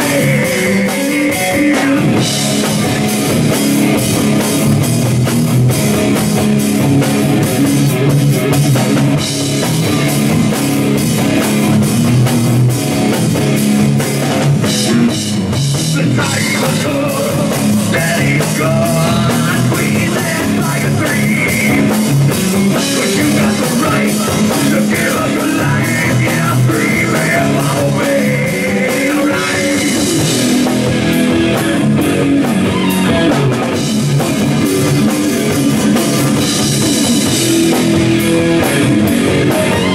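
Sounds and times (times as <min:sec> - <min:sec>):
person singing: 0:00.0 - 0:02.2, 0:15.9 - 0:30.3
drum kit: 0:00.0 - 0:39.9
electric guitar: 0:00.0 - 0:39.9.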